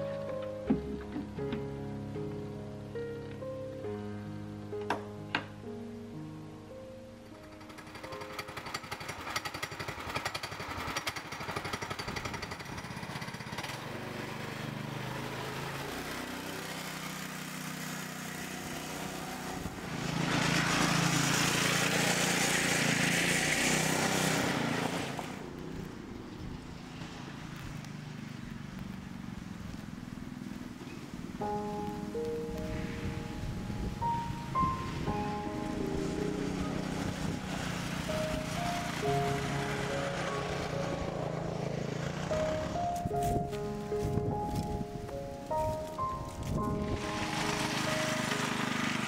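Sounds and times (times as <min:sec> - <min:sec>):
atv engine running: 0:07.3 - 0:32.4, 0:34.9 - 0:49.0.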